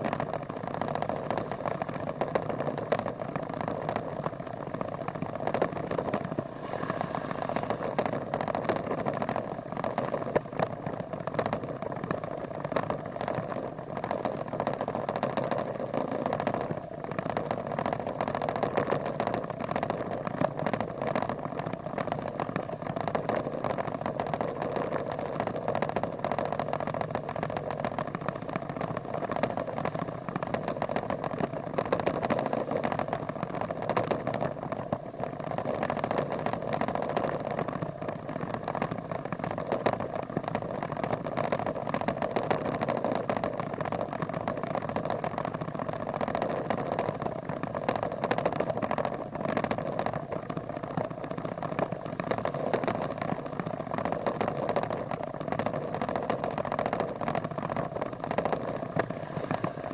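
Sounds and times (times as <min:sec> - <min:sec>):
road noise: 0:00.0 - 0:17.3, 0:56.7 - 0:59.9.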